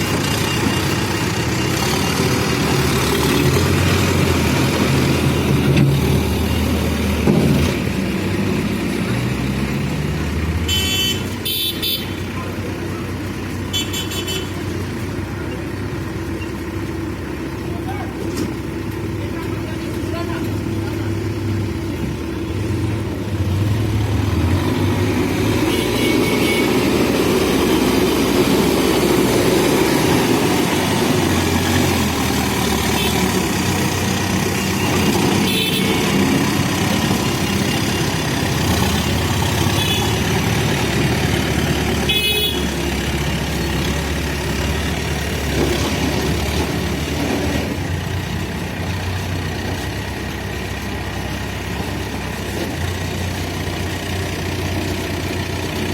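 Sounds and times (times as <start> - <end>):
backhoe diesel engine running: 0.0 - 55.9
traffic horn toots: 10.6 - 12.3, 13.7 - 14.7, 25.6 - 27.2, 32.8 - 33.5, 34.6 - 36.4, 39.6 - 40.4, 42.0 - 42.9.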